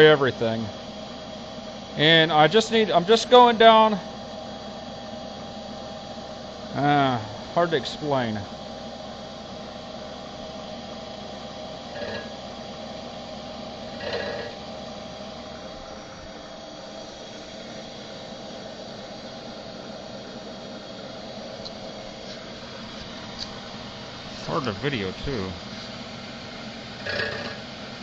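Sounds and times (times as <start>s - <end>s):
milling machine motor hum: 0.0s - 28.0s
cutter scraping metal: 11.9s - 12.3s, 14.0s - 14.6s.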